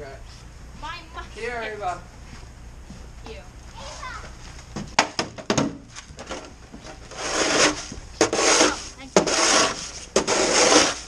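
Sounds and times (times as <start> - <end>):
sharp knocks: 4.8 - 6.4
snow shovel scraping: 7.0 - 11.0.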